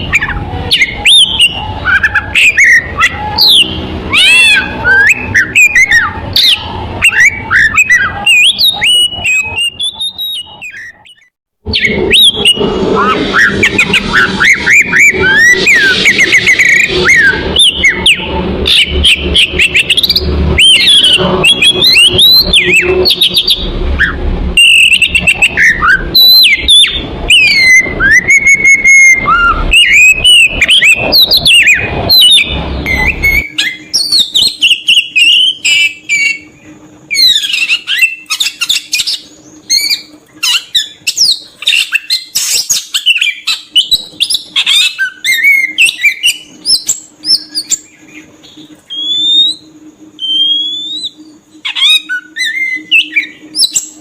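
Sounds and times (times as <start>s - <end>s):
bird singing whistles and chirps: 0.0s - 54.0s
low background rumble: 11.7s - 37.9s
faint steady hum: 11.7s - 54.0s.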